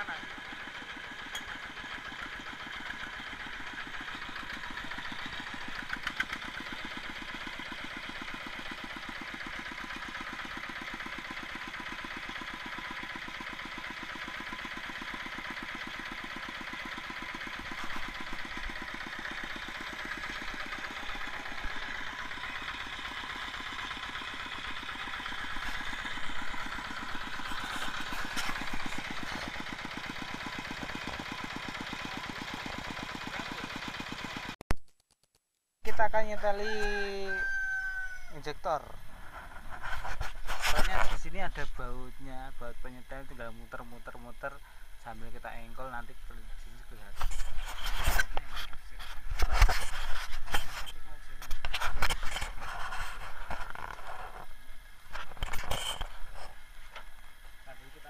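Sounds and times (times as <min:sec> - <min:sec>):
diesel tractor engine idling: 0:00.0 - 0:34.6, 0:35.9 - 0:58.0
engine knocks: 0:00.2 - 0:34.6.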